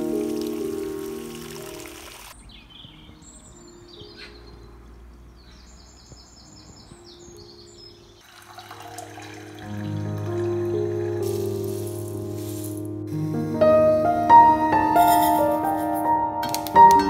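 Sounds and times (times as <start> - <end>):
water splashing: 0.0 - 2.4, 8.2 - 12.9
garden birds singing: 0.0 - 9.6
water poured into pan: 8.2 - 12.8.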